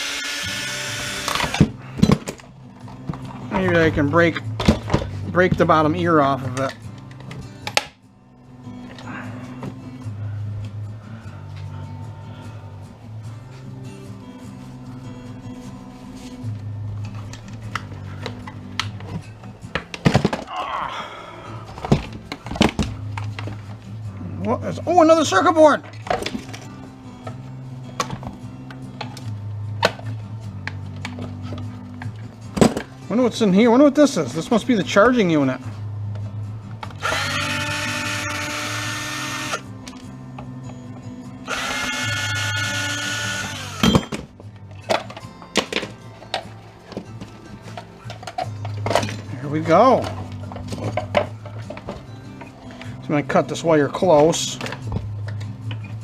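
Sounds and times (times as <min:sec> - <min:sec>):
power drill whining: 0:00.0 - 0:01.7, 0:37.0 - 0:39.6, 0:41.5 - 0:44.1
background music: 0:00.0 - 0:56.0.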